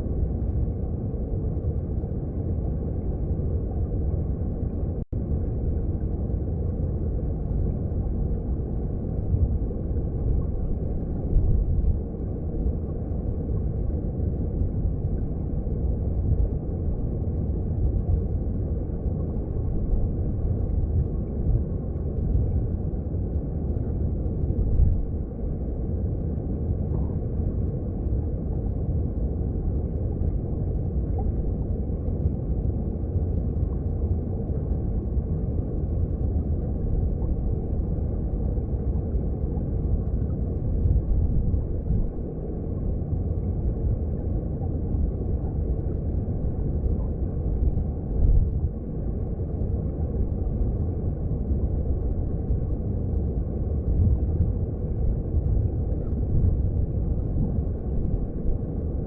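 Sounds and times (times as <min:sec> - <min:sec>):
rushing water heard underwater: 0:00.0 - 0:59.0.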